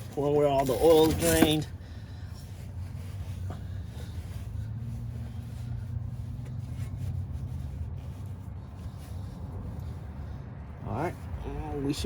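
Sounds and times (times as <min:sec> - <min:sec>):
rag rubbing: 0:00.4 - 0:01.7.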